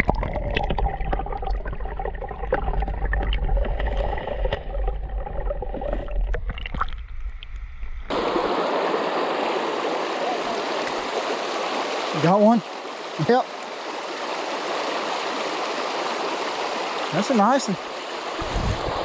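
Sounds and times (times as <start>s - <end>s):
flowing river water: 0.0s - 19.0s
low rumble: 0.6s - 8.1s.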